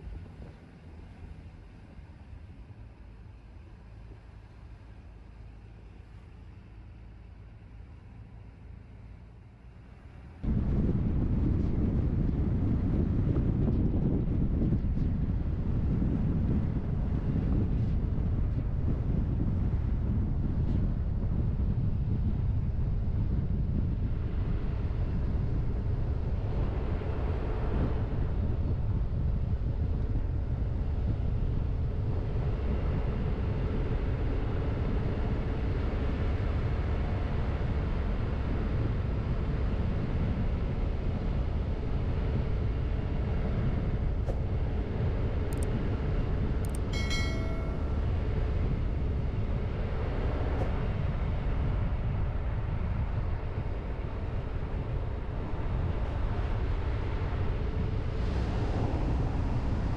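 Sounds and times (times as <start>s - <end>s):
car engine and tyres rumbling: 0.0s - 59.9s
faint clicks: 45.5s - 45.7s
short high-pitched tone: 46.9s - 48.1s.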